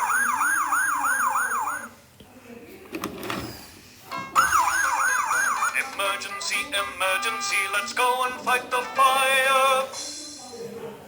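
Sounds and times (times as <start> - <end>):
toy siren whooping: 0.0 - 1.9, 4.4 - 5.9.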